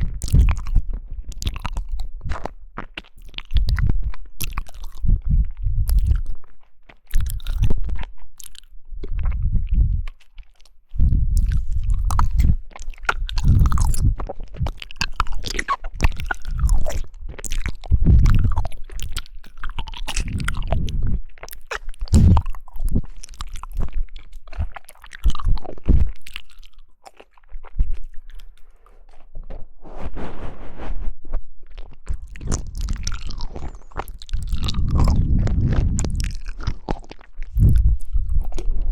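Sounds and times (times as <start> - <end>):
chewing jelly with wet clicks: 0.0 - 29.3, 31.6 - 38.9.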